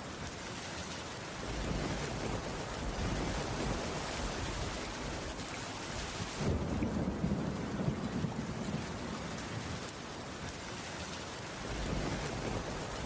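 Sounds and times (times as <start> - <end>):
steady rainfall: 0.0 - 13.0.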